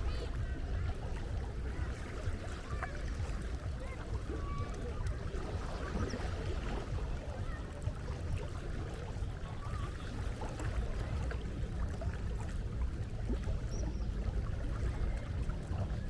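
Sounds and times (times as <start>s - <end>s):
sea water washing: 0.0s - 16.0s.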